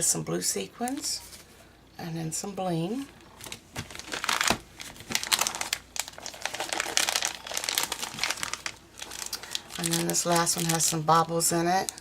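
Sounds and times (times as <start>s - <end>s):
thin plastic crinkling: 3.0s - 12.0s.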